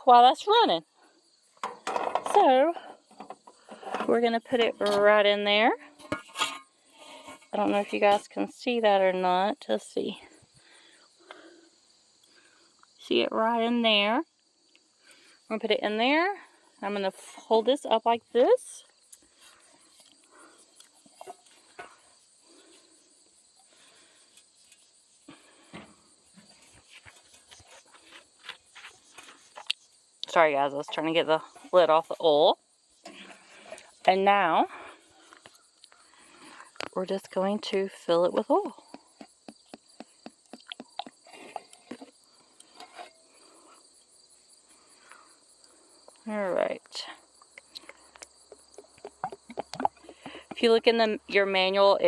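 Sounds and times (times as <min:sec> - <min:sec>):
insects chirring: 0:00.0 - 0:52.0
oil glugging from bottle: 0:47.6 - 0:50.8.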